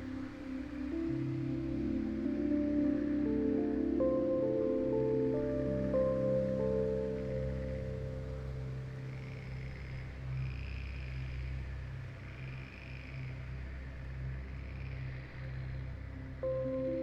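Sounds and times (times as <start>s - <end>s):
ambient music drone: 0.0s - 17.0s.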